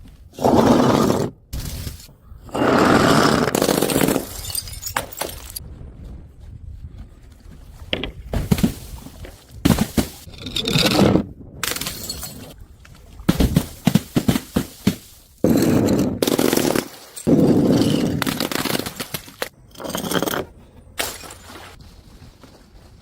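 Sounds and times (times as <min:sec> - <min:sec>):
glass shattering: 0:03.8 - 0:05.6, 0:11.6 - 0:12.6, 0:21.0 - 0:21.7
glass pieces clattering: 0:04.0 - 0:05.6, 0:11.7 - 0:12.6.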